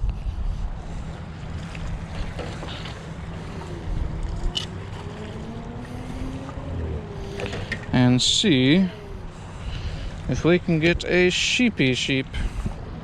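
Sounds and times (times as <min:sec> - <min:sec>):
wind on microphone: 0:00.0 - 0:11.2, 0:12.3 - 0:13.0
distant engine hum: 0:00.0 - 0:13.0
faint rising tone: 0:03.1 - 0:09.7.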